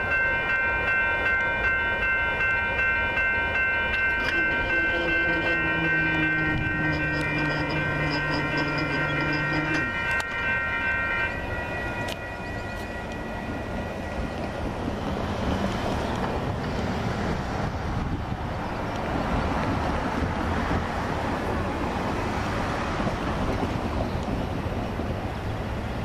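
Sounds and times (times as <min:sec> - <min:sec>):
train rumbling: 0:00.0 - 0:26.0
warning tones: 0:04.1 - 0:14.1
wind buffeting microphone: 0:14.1 - 0:25.5.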